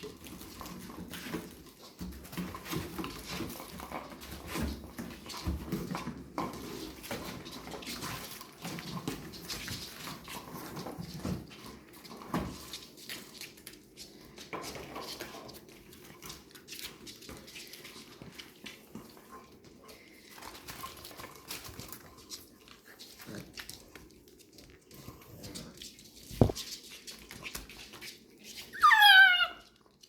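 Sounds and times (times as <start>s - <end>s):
puppies' paws clicking and scuffing: 0.0s - 30.0s
puppies whimpering: 28.7s - 29.7s.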